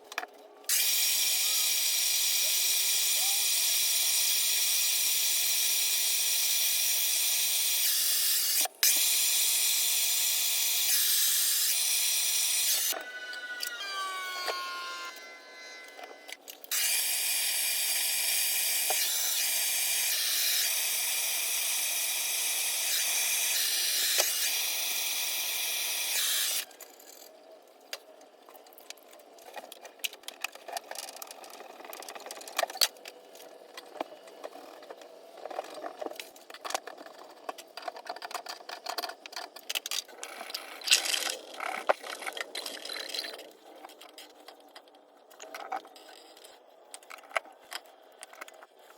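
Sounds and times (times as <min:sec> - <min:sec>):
power tool whining: 0:00.7 - 0:26.7
clicks and knocks of tools: 0:27.9 - 0:42.7.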